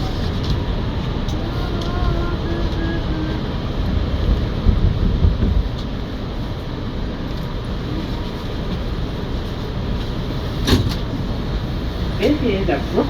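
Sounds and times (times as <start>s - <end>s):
subway car rumble: 0.0s - 13.0s.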